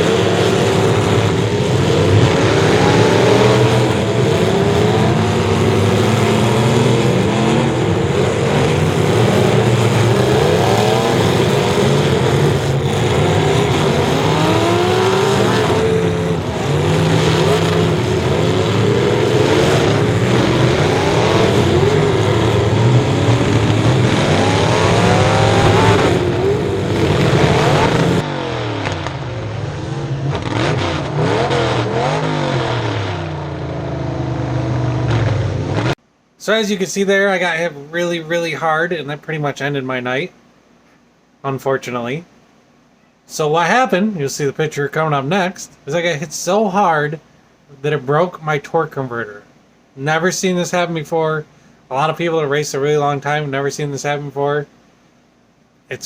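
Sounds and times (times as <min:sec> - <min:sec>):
race car engines revving: 0:00.0 - 0:36.0.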